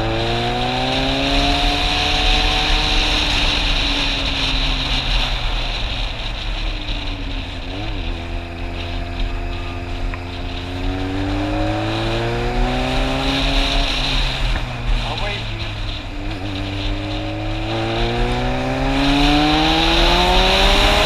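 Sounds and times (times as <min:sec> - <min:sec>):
motorcycle engine: 0:00.0 - 0:21.0
wind rumble: 0:00.0 - 0:21.0.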